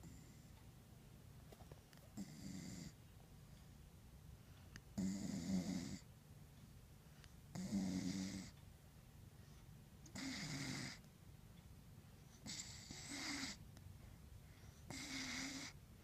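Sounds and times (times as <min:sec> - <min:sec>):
dog snoring: 0:00.0 - 0:00.5, 0:02.1 - 0:03.0, 0:04.9 - 0:06.1, 0:07.5 - 0:08.6, 0:10.1 - 0:11.0, 0:12.3 - 0:13.6, 0:14.9 - 0:15.8.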